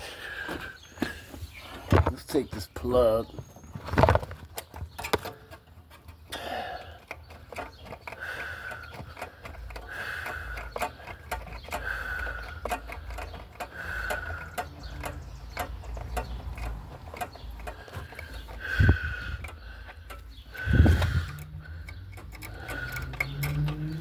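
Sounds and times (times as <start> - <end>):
ratchet wrench clicking: 5.0 - 24.0.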